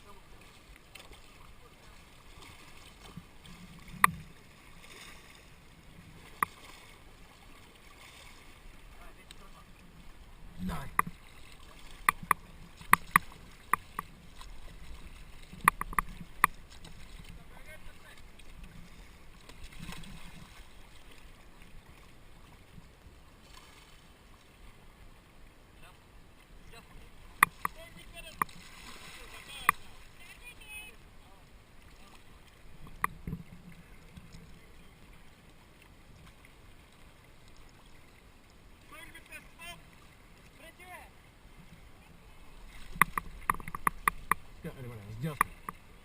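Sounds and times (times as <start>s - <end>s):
paddle strokes in water: 0.0s - 46.0s
river running: 0.0s - 46.0s
sharp knocks on kayak: 12.0s - 14.1s, 15.6s - 16.6s, 42.9s - 44.5s.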